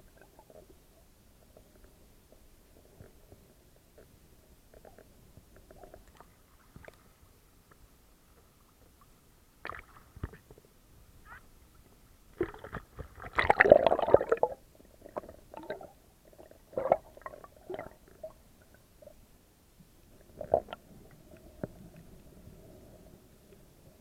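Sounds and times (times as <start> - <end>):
water gurgling and bubbling: 12.4 - 18.4.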